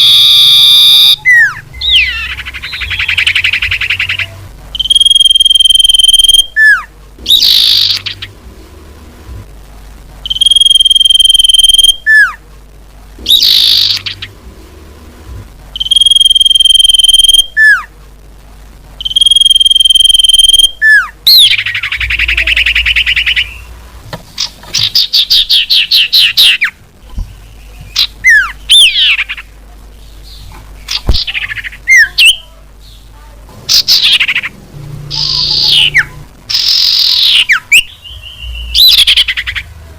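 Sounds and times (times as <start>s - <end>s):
sweeping bird chirps: 0.0s - 8.4s, 10.2s - 12.4s, 13.3s - 14.4s, 15.8s - 17.9s, 19.0s - 23.8s, 24.4s - 33.1s, 33.7s - 39.7s.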